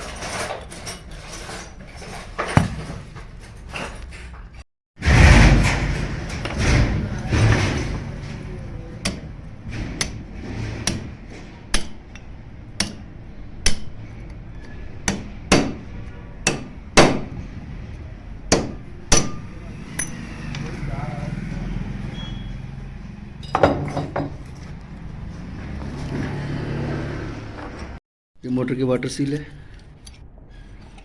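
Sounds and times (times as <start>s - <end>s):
hammer striking metal: 2.6s - 3.3s.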